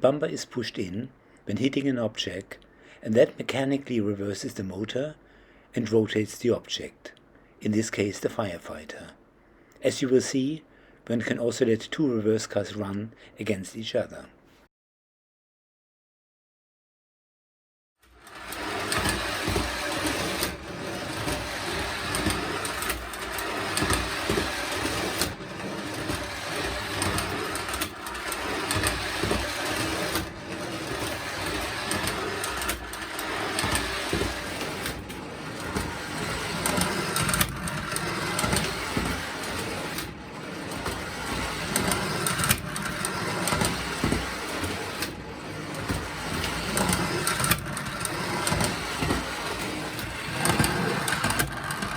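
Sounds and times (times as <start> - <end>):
toy train motor whirring: 18.1 - 51.9
wheels on rails: 18.1 - 51.9.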